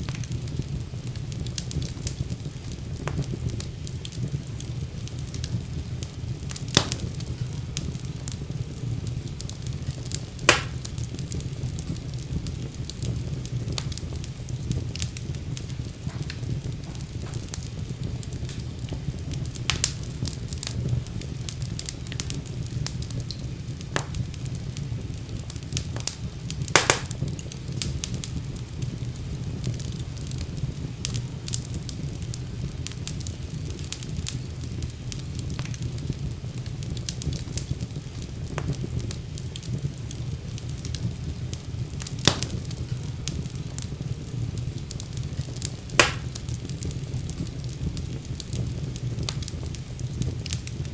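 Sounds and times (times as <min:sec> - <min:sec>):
low rumble of flames: 0:00.0 - 0:50.9
wood fire crackling: 0:00.0 - 0:50.9
sharp pops and snaps: 0:06.5 - 0:07.1, 0:10.4 - 0:10.9, 0:23.3 - 0:24.2, 0:26.0 - 0:27.2, 0:42.0 - 0:43.0, 0:45.9 - 0:46.4.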